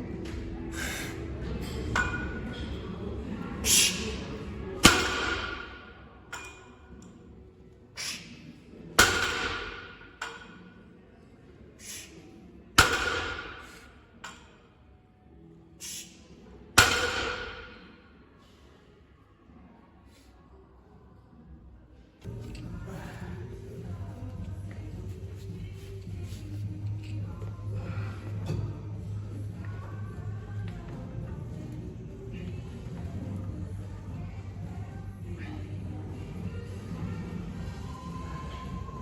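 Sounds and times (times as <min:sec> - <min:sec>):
short hissing sound: 0:03.6 - 0:04.2, 0:08.0 - 0:08.4, 0:15.8 - 0:16.2.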